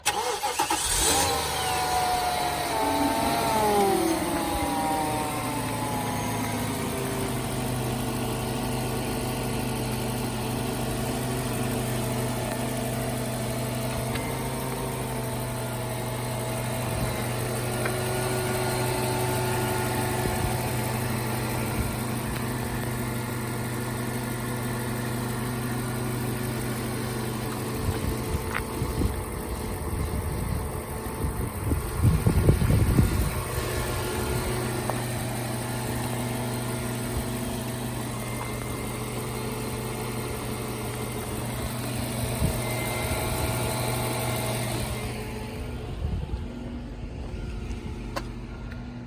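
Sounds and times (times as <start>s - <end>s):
car engine idling after start: 0.0s - 49.0s.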